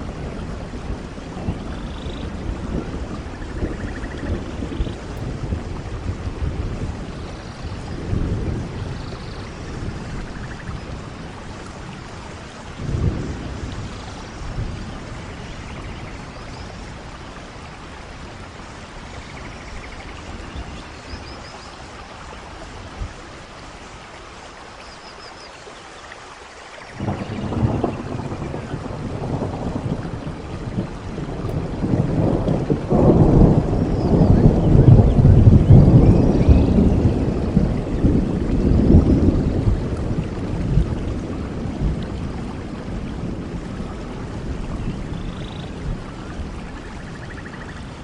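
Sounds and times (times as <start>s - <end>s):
steady rain hissing: 0.0s - 48.0s.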